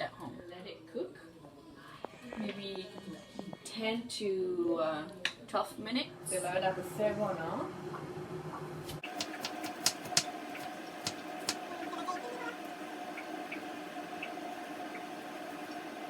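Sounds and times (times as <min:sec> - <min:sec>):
soup bubbles popping: 0:09.0 - 0:16.0.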